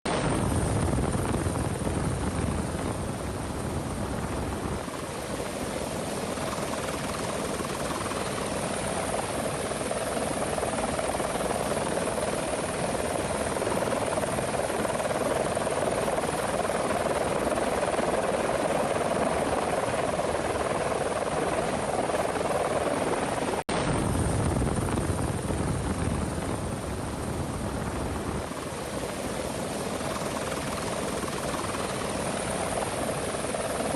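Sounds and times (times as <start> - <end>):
helicopter rotor and engine: 0.0 - 33.9.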